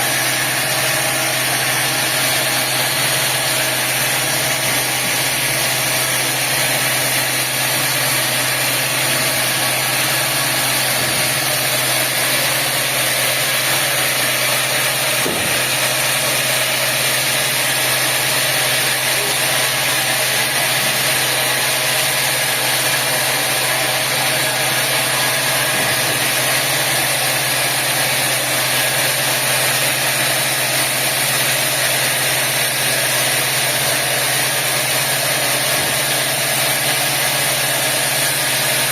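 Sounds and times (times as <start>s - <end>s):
sawmill machinery hum and hiss: 0.0s - 38.9s.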